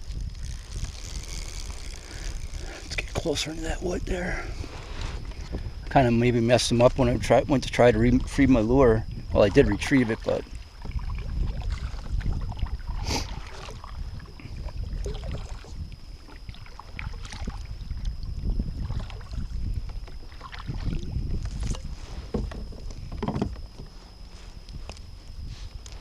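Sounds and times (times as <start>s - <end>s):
hull and water rumble: 0.0s - 26.0s
short knocks and clicks: 21.6s - 23.9s.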